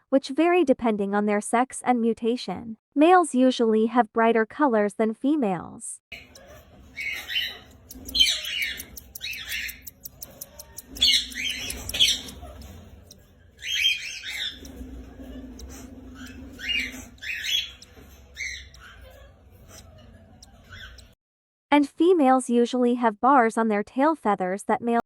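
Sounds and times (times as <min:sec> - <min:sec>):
cockatiels squawking: 0:06.2 - 0:21.2.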